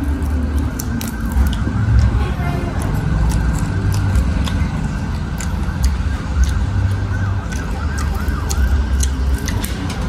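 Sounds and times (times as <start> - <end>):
wet chewing clicks: 0.0 - 10.0.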